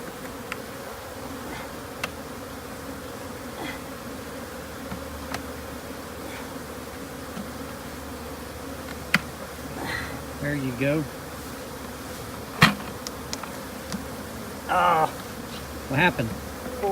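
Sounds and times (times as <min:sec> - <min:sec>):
honeybees buzzing: 0:00.0 - 0:16.9
sharp clicks: 0:12.9 - 0:14.0.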